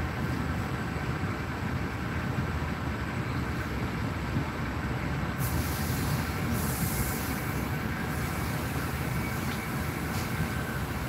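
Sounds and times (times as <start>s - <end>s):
train rumble: 0.0s - 11.0s
high hiss: 5.4s - 11.0s.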